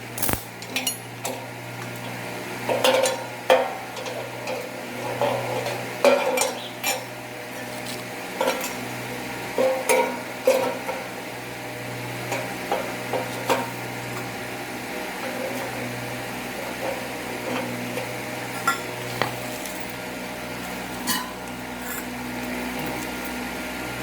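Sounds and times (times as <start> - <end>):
metal parts clinking and scraping: 0.2 - 1.0.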